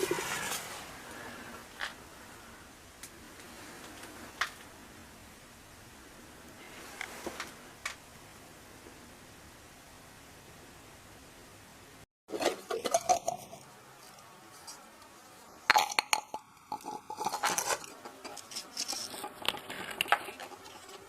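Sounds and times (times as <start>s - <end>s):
faint steady hiss: 0.0s - 21.0s
hard objects clicking and clinking: 15.7s - 21.0s.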